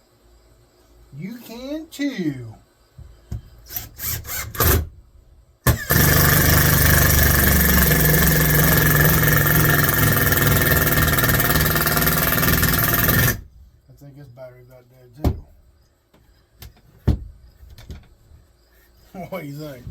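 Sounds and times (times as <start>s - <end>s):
cordless drill whining: 3.7s - 4.9s, 5.7s - 13.4s.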